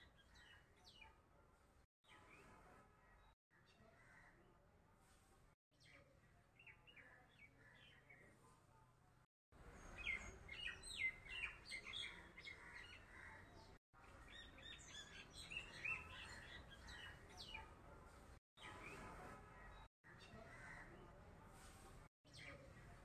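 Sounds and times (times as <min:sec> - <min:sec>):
small birds chirping: 0:09.6 - 0:21.0.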